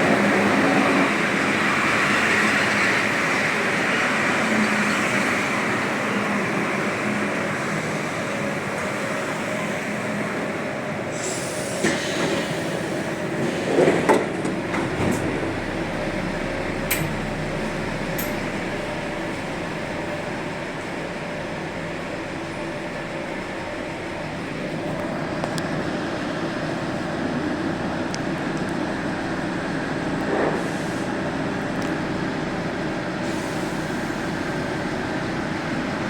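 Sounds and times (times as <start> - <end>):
train rumbling: 0.0 - 36.0
train clanks: 11.1 - 25.9.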